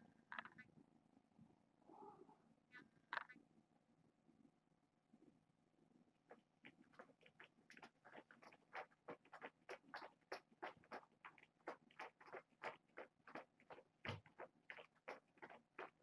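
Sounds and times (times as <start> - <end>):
kitten feeding wet clicks: 6.3 - 16.0.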